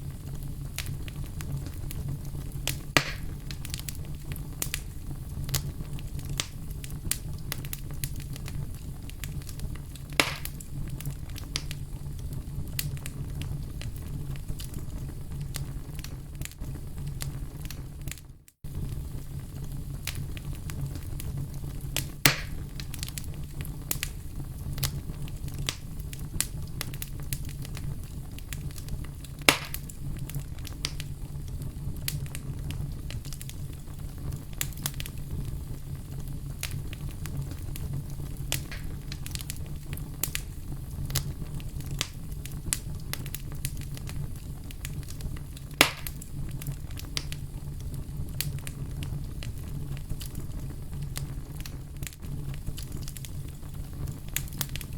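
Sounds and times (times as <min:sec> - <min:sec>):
fire pops: 0:00.0 - 0:54.9
wood fire crackling: 0:00.0 - 0:54.9.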